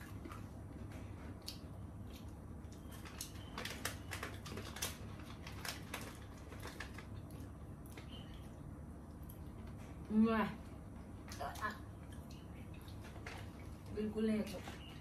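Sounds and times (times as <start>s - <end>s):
crunching biscuit sticks: 0.0s - 9.8s
faint low hum: 0.0s - 15.0s.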